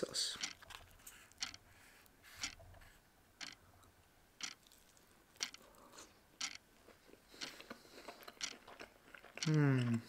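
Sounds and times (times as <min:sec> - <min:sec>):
chewing crispy fried chicken: 0:04.4 - 0:06.1, 0:06.8 - 0:10.0.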